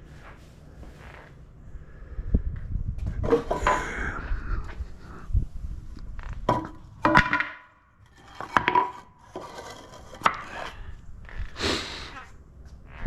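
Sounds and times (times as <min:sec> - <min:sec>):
tools knocking and clinking: 0:06.5 - 0:09.0.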